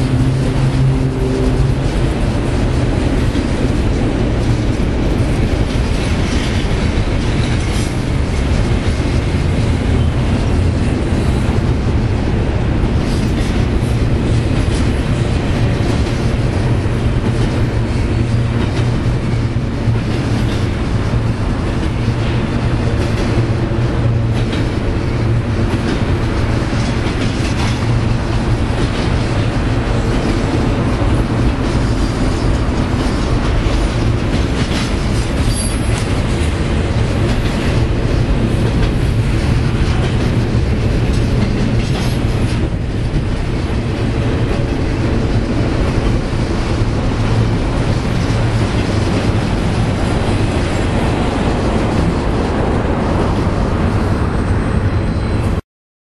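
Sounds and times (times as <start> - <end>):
wheels clattering on rails: 0.0 - 55.6
wheel squeal: 35.4 - 36.0.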